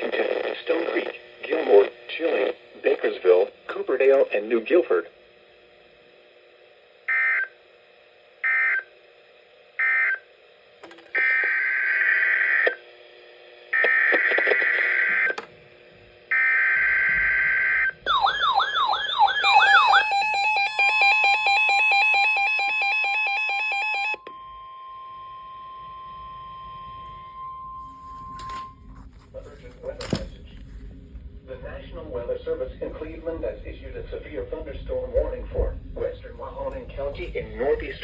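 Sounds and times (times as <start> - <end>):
steady warning alarm tone: 7.0 - 7.7, 8.4 - 8.9, 9.8 - 10.3, 11.1 - 12.9, 16.3 - 29.0
rapid electronic beeping: 17.4 - 23.7.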